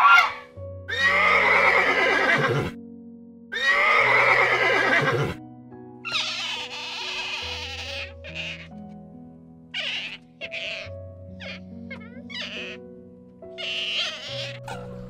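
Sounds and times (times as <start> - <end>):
squeaky animal call: 0.0 - 2.6, 3.6 - 5.3, 6.0 - 8.8, 9.7 - 12.9, 13.5 - 15.0
horse whinnying: 0.0 - 2.8, 3.5 - 5.4, 6.1 - 8.7, 13.6 - 15.0
background music with sustained notes: 0.0 - 15.0.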